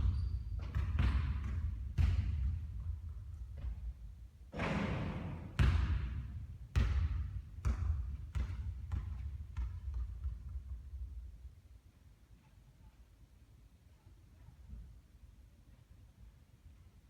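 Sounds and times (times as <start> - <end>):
basketball bouncing on court: 0.0 - 3.9, 4.5 - 11.2.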